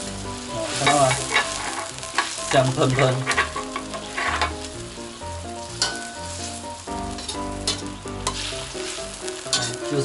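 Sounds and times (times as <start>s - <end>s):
food sizzling in a wok: 0.0s - 10.0s
light background music: 0.0s - 10.0s
metal ladle clinking on wok: 5.8s - 6.2s.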